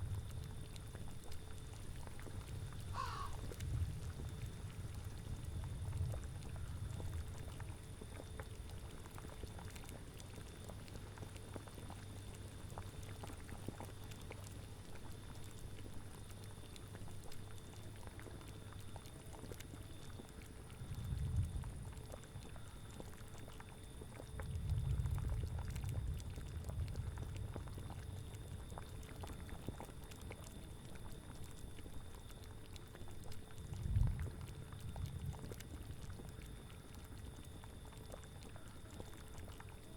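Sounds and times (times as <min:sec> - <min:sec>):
cauldron bubbling: 0:18.0 - 0:39.9.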